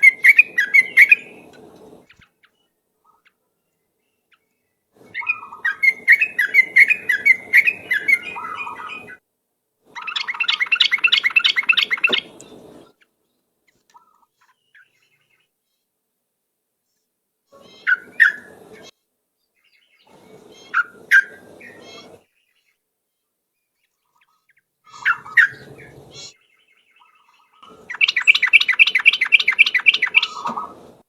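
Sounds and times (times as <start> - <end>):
bird chattering: 0.0 - 1.5, 5.1 - 9.2, 10.0 - 13.0, 24.9 - 26.4, 27.0 - 30.8.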